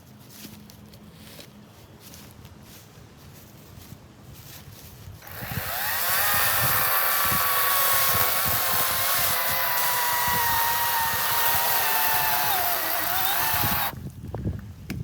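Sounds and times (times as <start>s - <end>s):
electric chainsaw whining: 5.2s - 14.0s.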